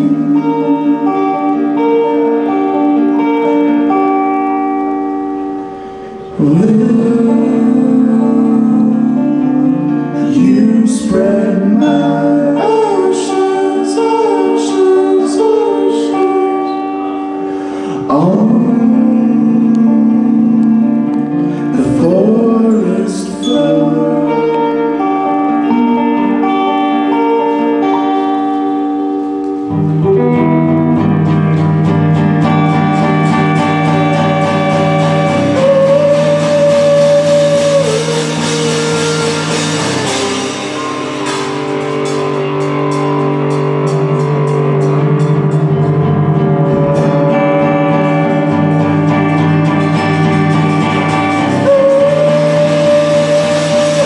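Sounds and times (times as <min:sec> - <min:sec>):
bass line: 0:00.0 - 0:28.3, 0:29.0 - 0:54.0
plucked guitars: 0:00.0 - 0:54.0
drum strikes: 0:29.5 - 0:54.0.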